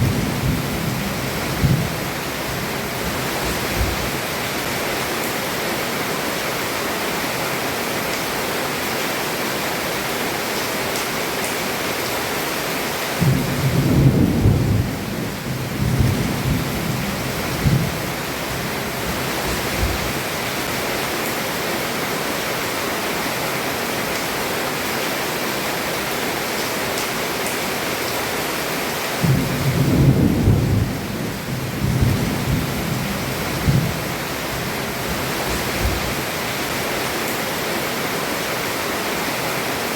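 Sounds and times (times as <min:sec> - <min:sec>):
rolling thunder: 0:00.0 - 0:02.0, 0:13.2 - 0:20.1, 0:29.2 - 0:36.1
heavy rain on a roof: 0:00.0 - 0:39.9.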